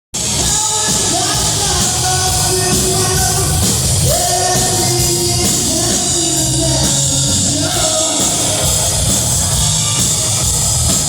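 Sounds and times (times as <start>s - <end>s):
rock band playing live: 0.1s - 11.0s
person singing: 0.4s - 9.2s.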